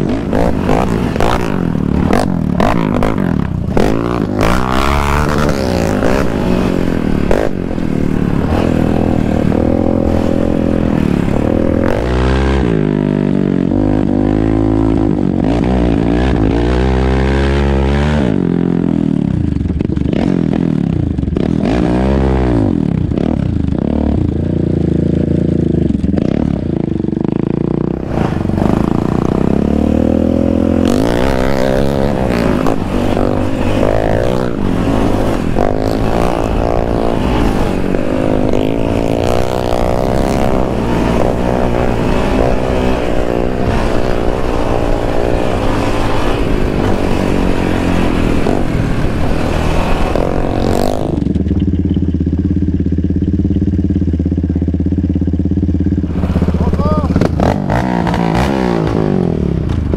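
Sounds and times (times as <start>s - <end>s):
wind rush: 0.0s - 13.0s, 27.9s - 51.3s, 56.0s - 59.9s
atv engine revving: 0.0s - 59.9s.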